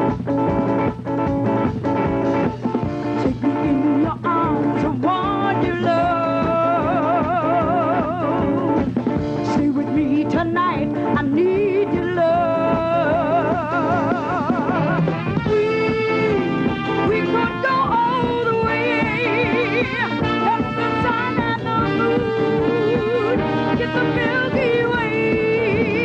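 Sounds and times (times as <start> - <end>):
drum beat: 0.0 - 3.8, 12.8 - 26.0
held chords: 0.0 - 26.0
person singing with vibrato: 3.2 - 8.8, 9.4 - 26.0.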